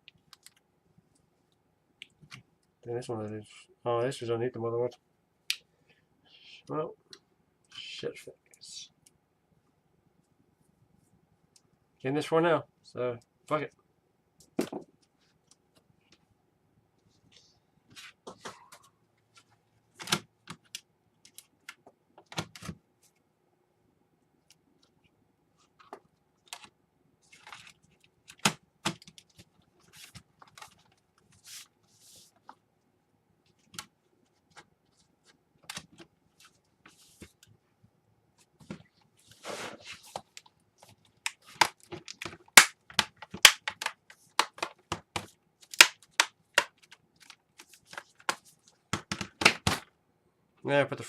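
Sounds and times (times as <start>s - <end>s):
plastic laptop parts clicking: 41.2s - 48.4s.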